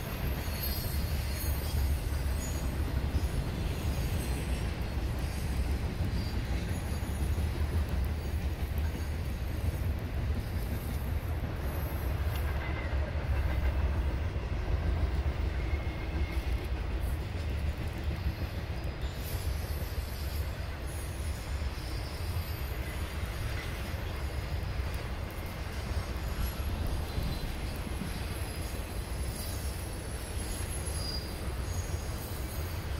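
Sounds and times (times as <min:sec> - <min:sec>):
high wheel squeals: 0:00.0 - 0:07.4, 0:19.0 - 0:24.4, 0:25.5 - 0:32.9
freight train rumbling past: 0:00.0 - 0:32.9.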